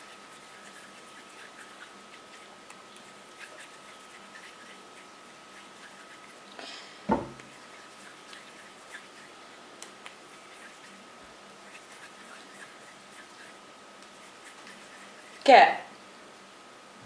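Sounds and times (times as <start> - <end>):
hands rubbing clay: 0.0 - 6.5, 7.2 - 15.4
faint steady hum: 0.0 - 17.0
sharp thump: 7.1 - 7.4.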